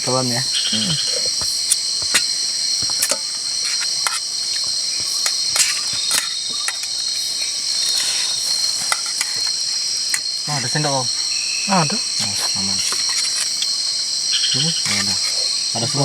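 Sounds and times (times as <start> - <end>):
night insects shrilling: 0.0 - 16.0.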